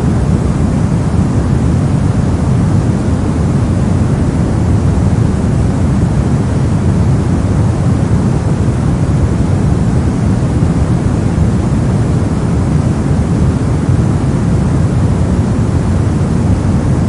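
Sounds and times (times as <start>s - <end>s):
brown noise rumble: 0.0s - 17.0s.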